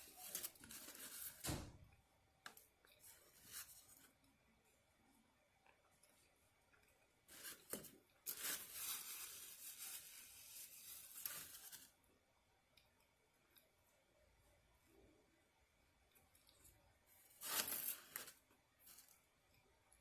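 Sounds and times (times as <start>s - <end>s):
food packaging crinkling and tearing: 0.0s - 1.4s, 7.3s - 11.9s.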